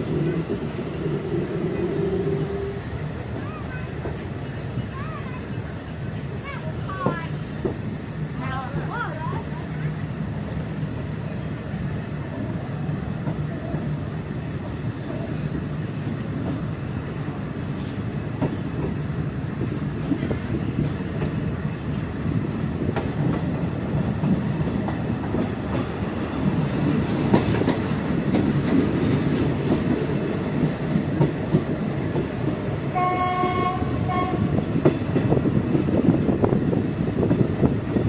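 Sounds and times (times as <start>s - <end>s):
train rumbling on rails: 0.0s - 38.0s
train horn: 2.2s - 2.9s, 32.9s - 34.7s.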